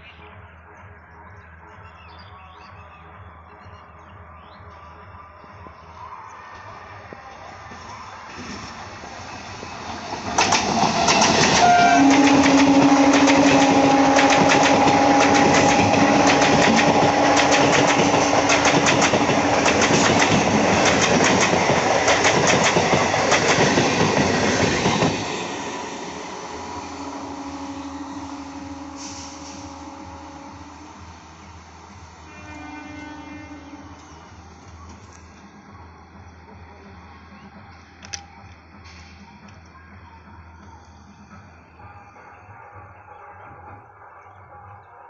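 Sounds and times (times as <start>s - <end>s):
train wheels clacking over rail joints: 9.7s - 25.2s
train horn blast: 11.4s - 18.6s, 26.7s - 31.2s, 32.2s - 34.5s.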